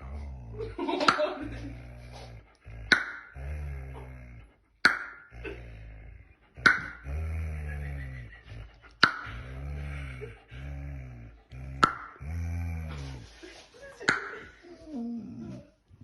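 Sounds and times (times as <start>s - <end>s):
dog growling: 0.0s - 13.6s, 14.4s - 16.0s
dog snapping: 2.9s - 3.4s, 6.6s - 7.1s, 8.9s - 9.3s.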